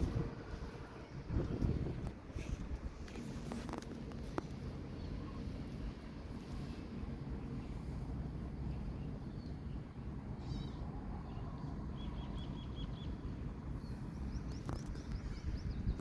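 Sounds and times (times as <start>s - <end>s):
low outdoor rumble: 0.0s - 16.0s
small birds chirping: 3.6s - 16.0s.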